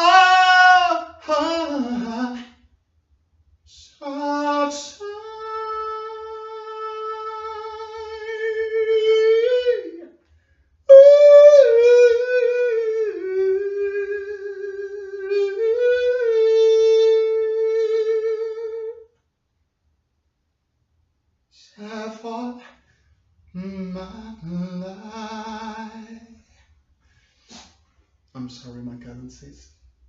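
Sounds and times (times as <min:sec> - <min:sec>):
person singing high held notes: 0:10.9 - 0:19.0.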